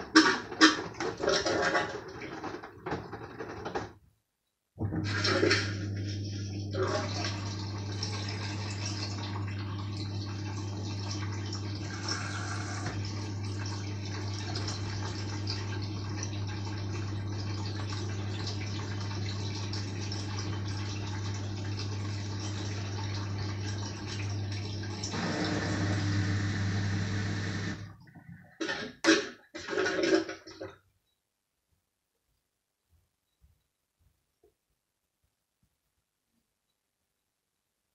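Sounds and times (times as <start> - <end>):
drain pump humming: 4.8 - 28.1.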